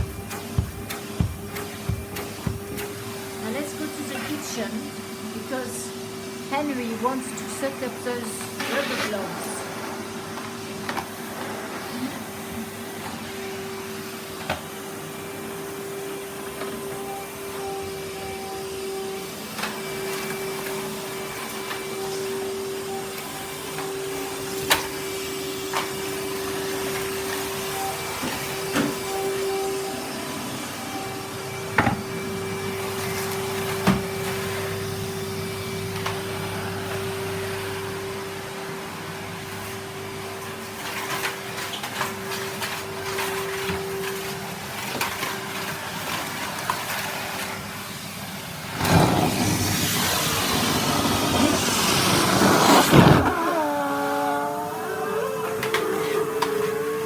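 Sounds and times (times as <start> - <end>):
knocks and clicks: 0.0 - 3.0
vacuum cleaner running: 0.0 - 57.0.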